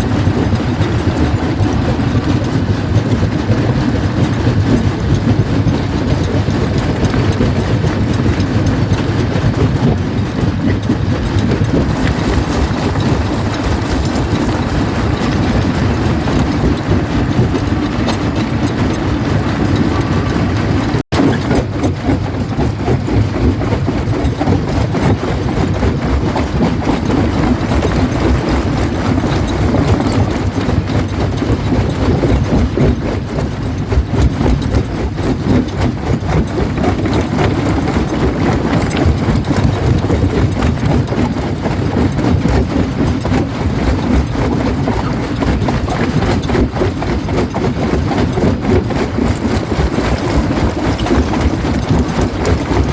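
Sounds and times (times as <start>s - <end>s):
rock crusher rumbling: 0.0s - 52.9s
stone cracking and clattering: 11.8s - 16.6s.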